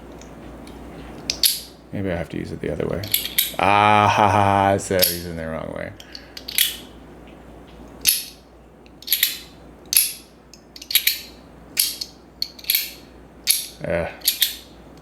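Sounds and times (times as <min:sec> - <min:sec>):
slider coin halves clicking: 0:01.3 - 0:01.7, 0:03.0 - 0:03.6, 0:08.0 - 0:08.4, 0:09.0 - 0:14.7.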